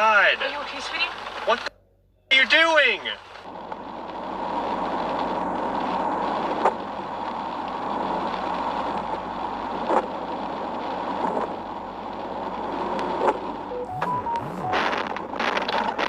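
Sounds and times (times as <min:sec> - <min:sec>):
moving car road noise: 0:03.2 - 0:16.0.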